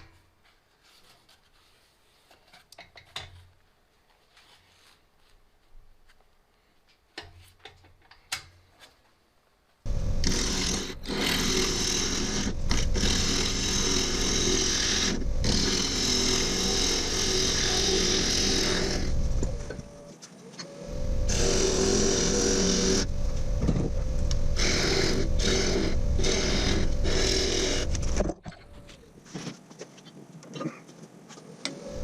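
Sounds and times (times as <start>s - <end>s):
turning tool cutting wood: 9.9s - 20.0s, 20.7s - 28.9s
lathe motor hum: 9.9s - 28.9s.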